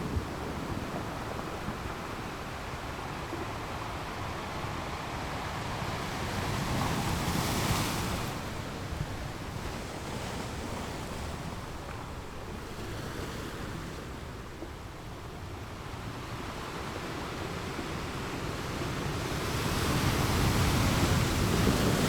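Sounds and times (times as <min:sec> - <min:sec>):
ocean surf breaking on a beach: 0:00.0 - 0:22.0.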